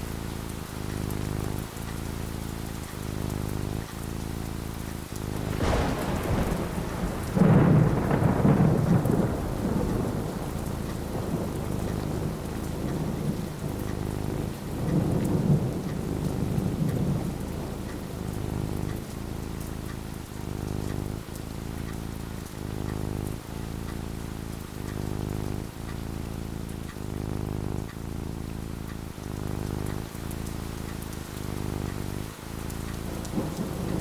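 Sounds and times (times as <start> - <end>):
steady rain: 0.0 - 34.0
rolling thunder rumble: 5.3 - 19.8, 31.2 - 34.0
sharp thunder crack: 5.4 - 17.4.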